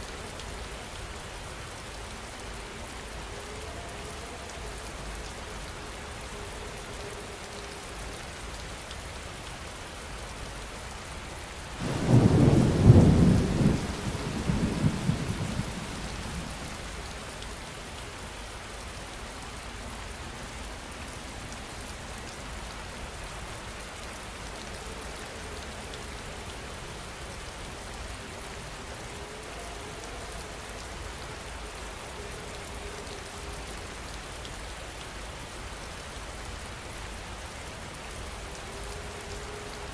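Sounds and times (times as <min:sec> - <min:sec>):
heavy rain falling: 0:11.0 - 0:19.4
thunderclap rumbling: 0:11.8 - 0:17.4.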